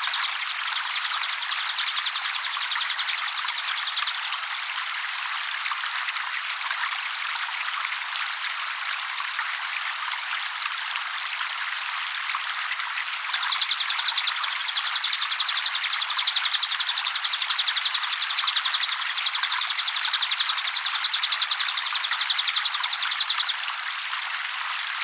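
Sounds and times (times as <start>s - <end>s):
bird trilling high chirps: 0.0s - 4.5s, 13.3s - 23.5s
trickling water: 0.0s - 25.0s.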